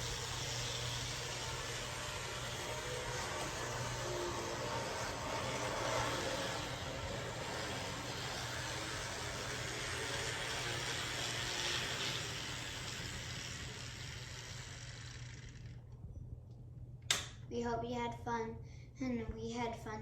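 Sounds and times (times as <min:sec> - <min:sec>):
model train motor whirring: 0:00.0 - 0:15.9.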